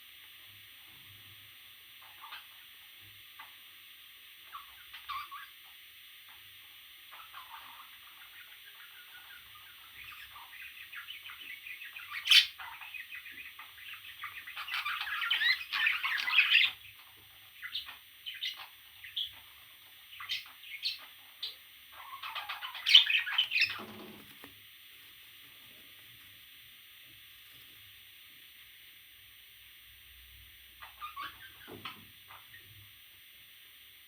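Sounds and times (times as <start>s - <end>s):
parrot chicks squawking: 4.5s - 5.5s, 7.1s - 24.5s, 30.8s - 32.6s.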